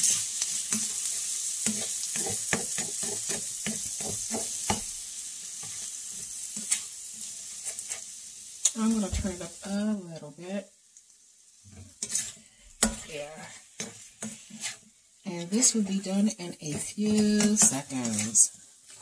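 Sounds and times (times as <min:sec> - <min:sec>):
utensil scraping a pan: 0:00.0 - 0:05.0, 0:05.6 - 0:08.2, 0:11.7 - 0:19.0
eggs and meat sizzling in oil: 0:00.0 - 0:19.0.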